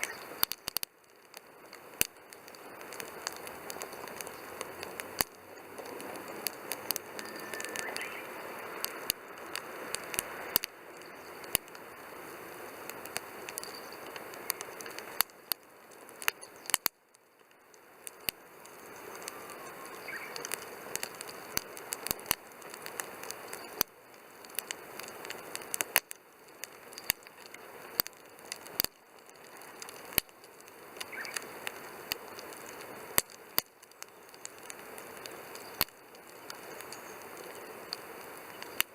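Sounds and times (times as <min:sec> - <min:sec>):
campfire crackling and popping: 0:00.0 - 0:38.9
fire hiss: 0:00.0 - 0:38.9
faint short whistles: 0:07.2 - 0:08.2.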